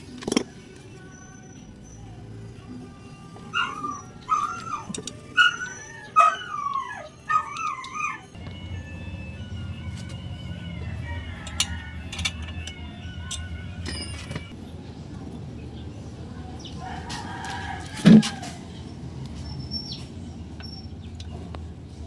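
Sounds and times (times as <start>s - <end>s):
rooster crowing: 10.7s - 13.5s, 16.8s - 18.6s.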